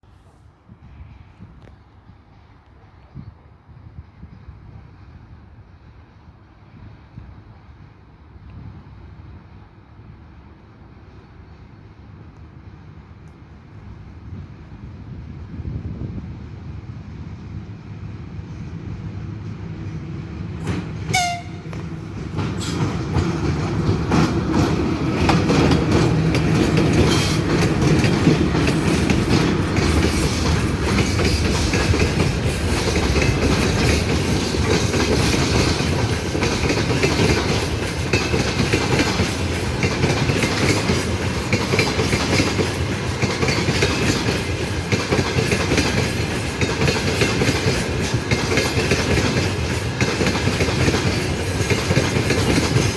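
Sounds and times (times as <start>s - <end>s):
train rumble and wheel clatter: 0.0s - 52.9s
train horn blast: 21.1s - 22.0s.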